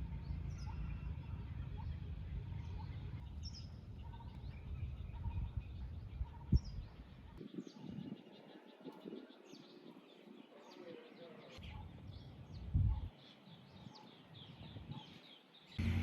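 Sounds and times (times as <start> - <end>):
birds chirping: 0.0 - 16.0
low rumble: 15.8 - 16.0.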